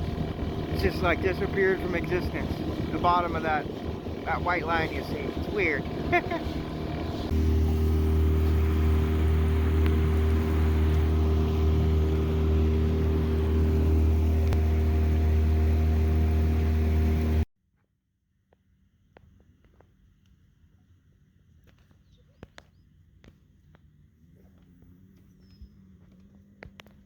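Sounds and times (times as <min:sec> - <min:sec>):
motorboat engine droning: 0:00.0 - 0:17.5.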